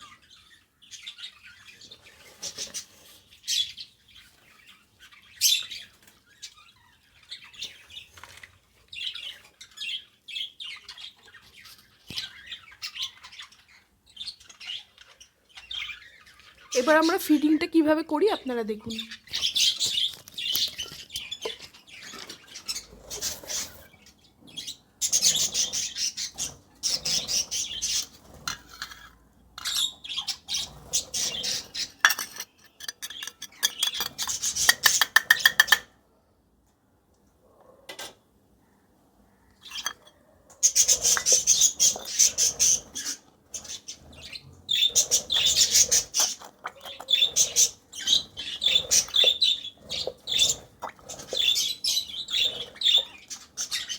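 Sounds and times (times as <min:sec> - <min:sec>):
bird chick chirping begging calls: 0:40.6 - 0:53.9.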